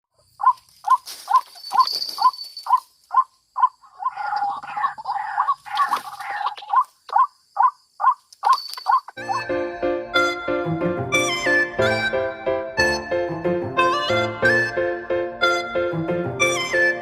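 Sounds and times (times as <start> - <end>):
waterhen calling: 2.7 - 9.4.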